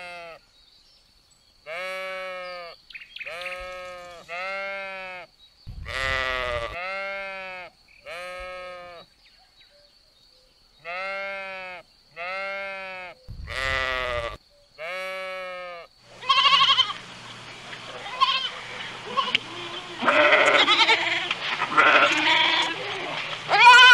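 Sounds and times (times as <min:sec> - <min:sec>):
sheep bleating: 0:01.7 - 0:09.0, 0:10.8 - 0:23.9
low steady hum: 0:16.1 - 0:23.5.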